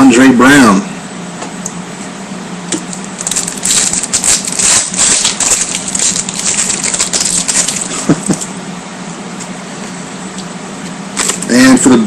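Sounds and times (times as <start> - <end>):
foil wrappers crinkling and tearing: 2.9 - 8.5, 11.2 - 11.6.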